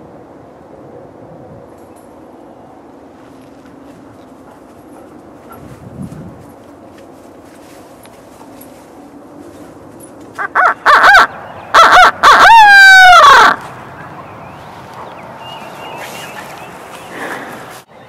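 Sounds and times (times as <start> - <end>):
turkey gobbling: 10.4 - 14.2.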